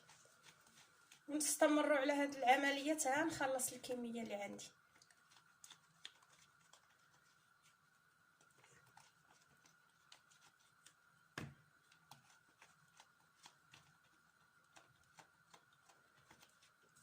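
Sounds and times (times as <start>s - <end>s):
faint high hum: 0.0s - 17.0s
knife scraping eggplant: 11.8s - 17.0s.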